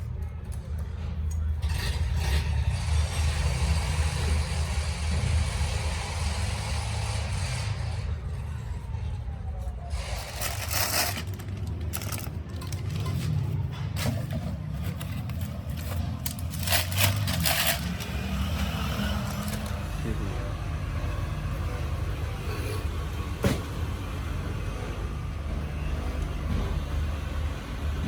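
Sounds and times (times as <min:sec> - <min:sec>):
scraping: 0:09.9 - 0:19.9.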